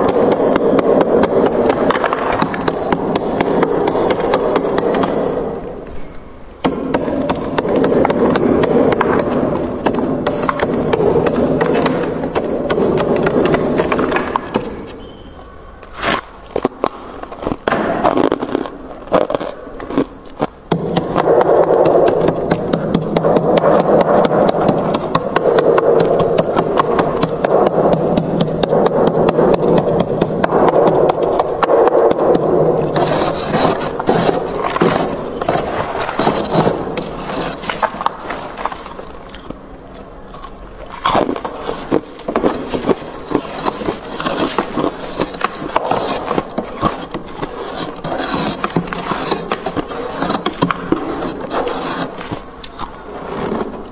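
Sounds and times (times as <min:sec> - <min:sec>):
frost being scraped: 0:32.8 - 0:39.2, 0:40.8 - 0:53.8.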